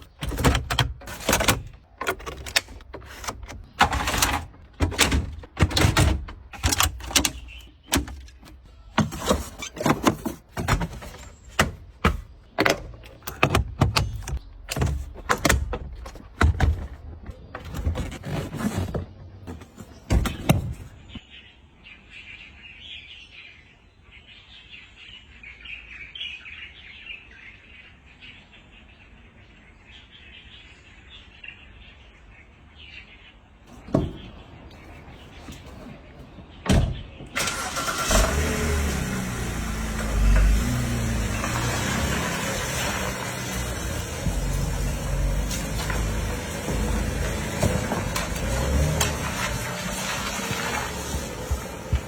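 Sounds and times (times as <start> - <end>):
birds chirping: 0.0 - 52.0
water spraying: 37.4 - 52.0.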